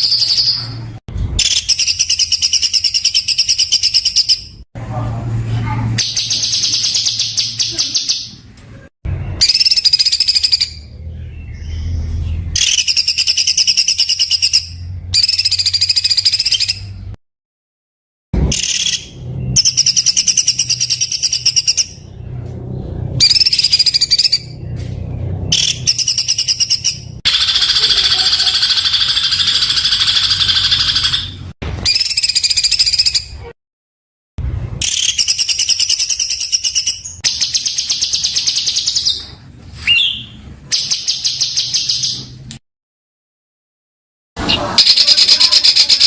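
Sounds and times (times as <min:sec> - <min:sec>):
songbird rattling bursts: 0:27.3 - 0:33.0.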